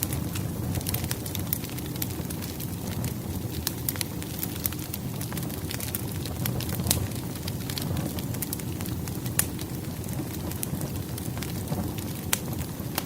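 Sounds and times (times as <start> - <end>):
firewood crackling: 0.0 - 13.0.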